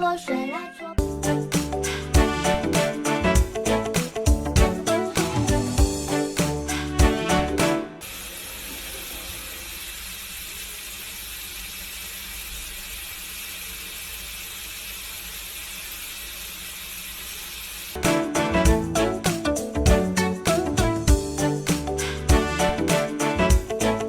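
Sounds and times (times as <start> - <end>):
steady hiss: 8.0 - 18.1.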